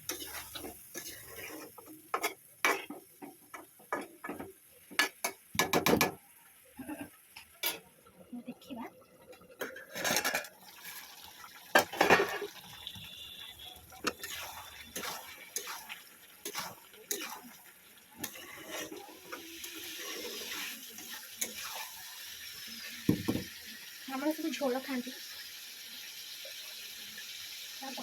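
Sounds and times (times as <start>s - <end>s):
metal utensils and pots clinking: 0.0s - 6.2s, 6.8s - 7.9s, 9.3s - 22.2s
water running and splashing: 10.4s - 28.0s.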